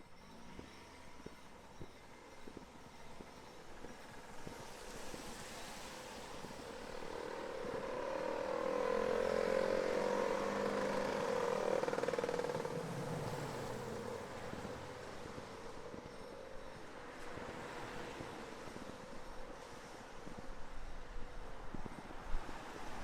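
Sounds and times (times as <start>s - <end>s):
passing vehicle: 5.4s - 20.3s.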